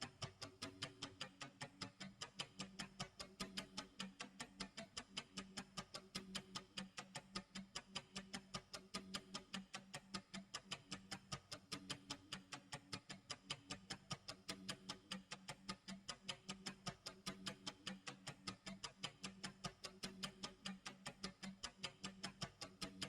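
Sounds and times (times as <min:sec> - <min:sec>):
clock ticking: 0:00.0 - 0:23.0.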